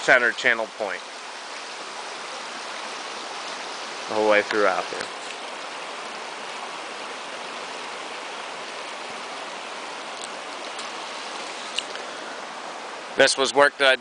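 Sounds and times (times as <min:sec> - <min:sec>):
stream flowing over rocks: 0:00.0 - 0:14.0
faint ticks: 0:11.7 - 0:12.1.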